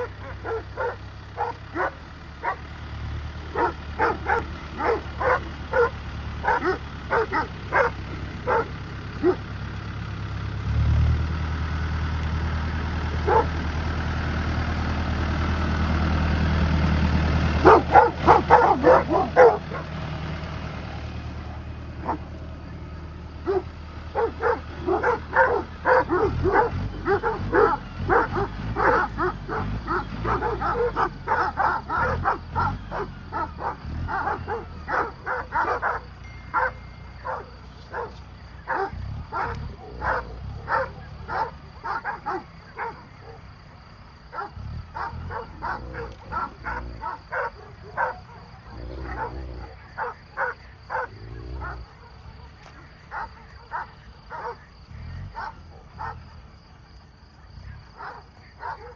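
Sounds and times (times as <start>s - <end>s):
dogs barking: 0.0s - 2.8s, 3.4s - 9.7s, 13.0s - 13.8s, 17.6s - 20.1s, 22.0s - 22.4s, 23.3s - 43.5s, 44.3s - 56.5s, 57.7s - 58.9s
tractor engine humming: 0.0s - 58.9s.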